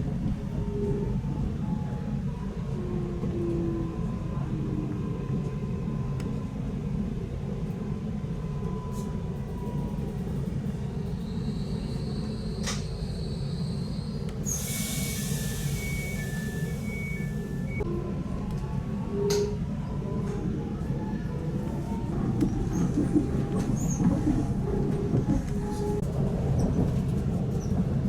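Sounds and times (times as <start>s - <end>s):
train carriage rumble: 0.0s - 28.0s.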